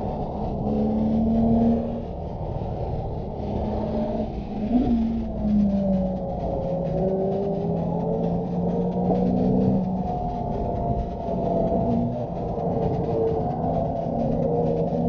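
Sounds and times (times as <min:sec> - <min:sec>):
car engine from inside cabin: 0:00.0 - 0:15.0
road rumble: 0:00.0 - 0:15.0.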